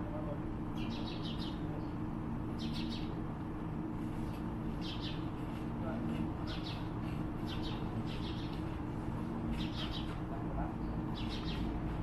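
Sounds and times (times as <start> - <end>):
steady low hum: 0.0 - 12.0
small bird chirping: 0.8 - 2.0, 2.6 - 3.2, 4.8 - 5.3, 6.4 - 8.6, 9.6 - 10.2, 10.8 - 11.7.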